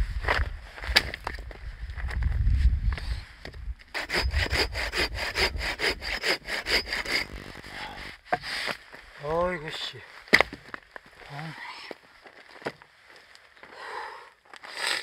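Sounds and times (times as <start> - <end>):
hand saw cutting log: 4.0 - 8.6.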